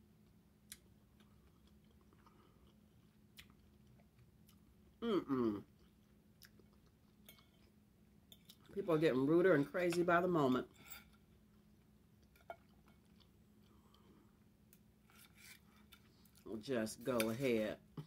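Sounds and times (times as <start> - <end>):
quiet chewing: 0.2 - 5.0, 5.6 - 8.8, 11.1 - 16.5.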